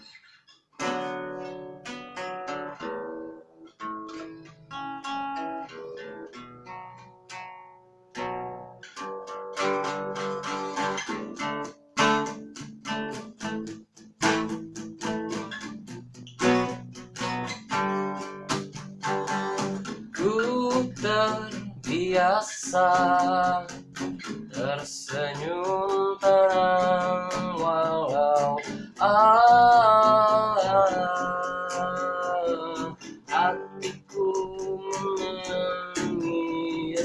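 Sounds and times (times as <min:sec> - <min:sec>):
acoustic guitar picking and strumming: 0:00.0 - 0:37.0.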